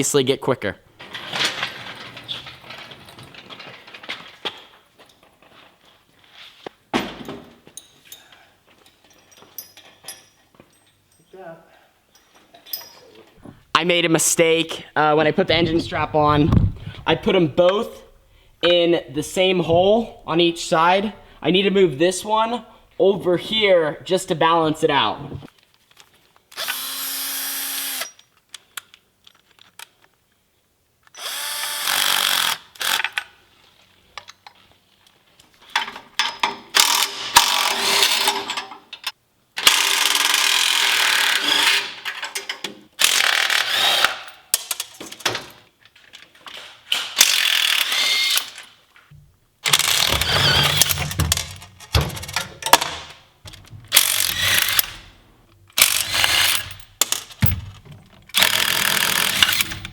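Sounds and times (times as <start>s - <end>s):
low rumble: 15.3s - 17.4s
power wrench running: 26.6s - 28.1s, 49.7s - 51.0s, 53.9s - 55.1s, 55.8s - 57.5s, 58.3s - 59.9s.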